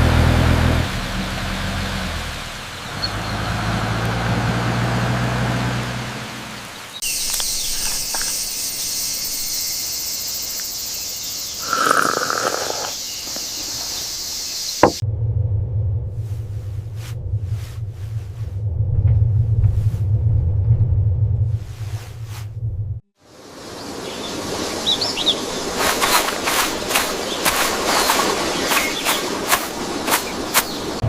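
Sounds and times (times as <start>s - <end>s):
bus engine humming: 0.0s - 8.6s, 12.8s - 23.1s.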